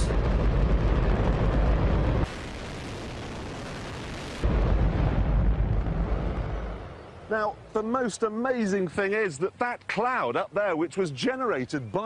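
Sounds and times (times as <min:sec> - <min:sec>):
rocket engine roaring: 0:00.0 - 0:07.3.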